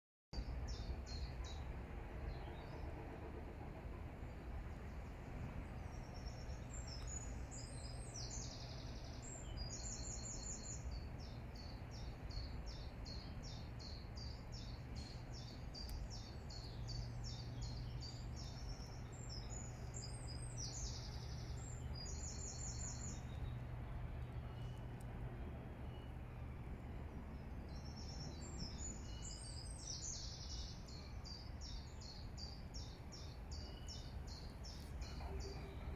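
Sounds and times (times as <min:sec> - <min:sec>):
steady low rumble: 0:00.4 - 0:35.9.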